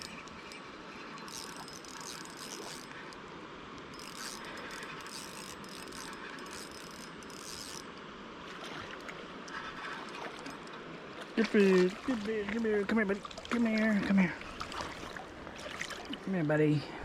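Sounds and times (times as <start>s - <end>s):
fishing reel ratcheting: 0.0s - 3.2s, 3.8s - 7.9s
creek water rushing: 8.0s - 17.0s.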